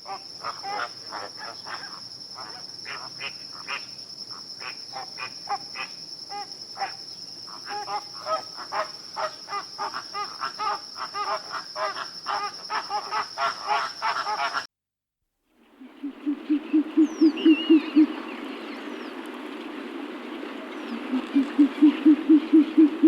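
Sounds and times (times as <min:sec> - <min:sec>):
insect chirring: 0:00.0 - 0:14.6, 0:15.8 - 0:19.1, 0:20.0 - 0:23.0.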